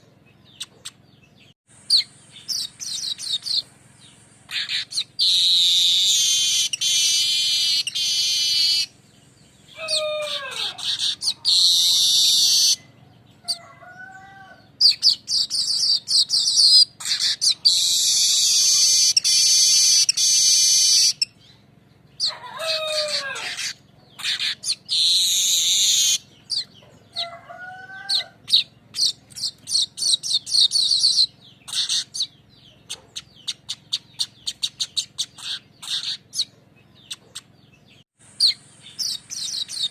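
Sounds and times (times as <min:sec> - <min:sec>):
bird chattering notes: 0:00.0 - 0:09.0, 0:09.7 - 0:13.6, 0:14.7 - 0:21.4, 0:23.0 - 0:27.3, 0:28.1 - 0:39.9
weaver bird buzzing trills: 0:01.7 - 0:12.9, 0:14.8 - 0:21.4, 0:22.2 - 0:26.7.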